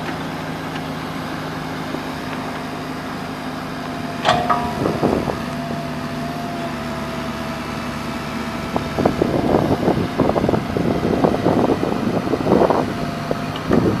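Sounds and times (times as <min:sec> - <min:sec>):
excavator diesel engine running: 0:00.0 - 0:14.0
machine clanks and rattles: 0:04.2 - 0:05.7.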